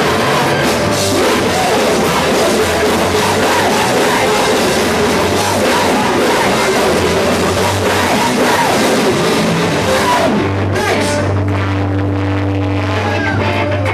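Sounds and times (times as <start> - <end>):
drums and cymbals: 0.0 - 10.4
distorted rock music: 0.0 - 13.9
held bass and guitar notes: 0.0 - 13.9.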